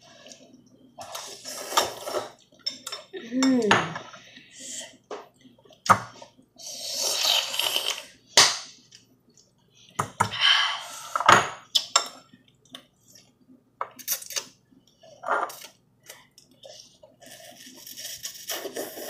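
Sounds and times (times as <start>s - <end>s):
eating noodles: 15.5s - 19.0s.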